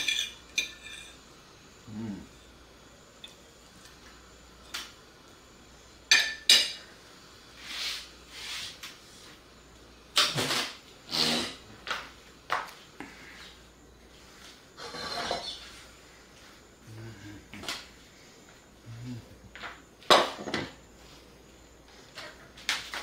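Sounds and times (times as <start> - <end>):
cutlery clinking on dishes: 0.0 - 1.2.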